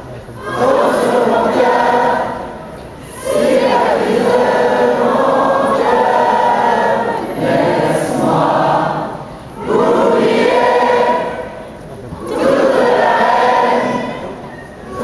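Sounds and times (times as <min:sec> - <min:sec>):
choir singing: 0:00.3 - 0:15.0.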